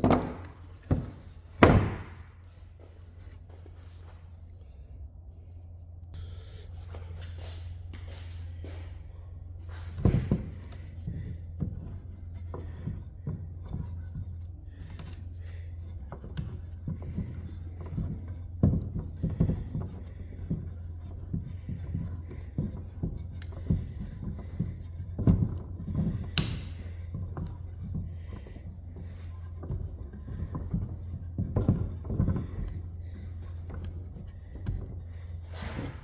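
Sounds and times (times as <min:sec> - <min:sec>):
wooden knocks and thunks: 0:00.0 - 0:02.4, 0:09.8 - 0:15.2, 0:16.1 - 0:36.0
steady low hum: 0:00.0 - 0:36.0.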